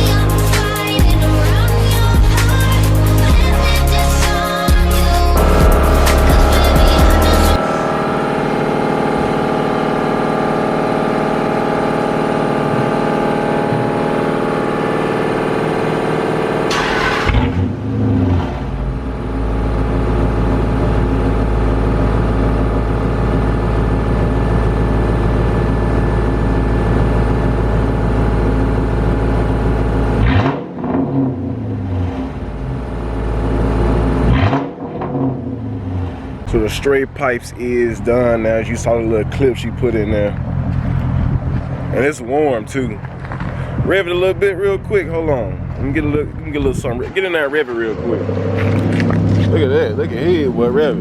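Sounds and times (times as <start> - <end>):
music: 0.0 - 7.9
engine revving: 0.0 - 51.0
loud car engine idling: 0.0 - 51.0.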